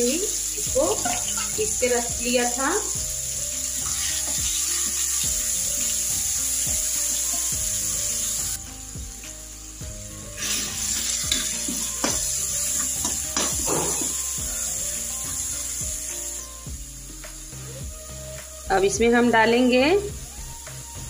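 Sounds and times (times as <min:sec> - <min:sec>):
paste sizzling in hot oil: 0:00.0 - 0:17.8
spoon scraping a pan: 0:12.8 - 0:14.2.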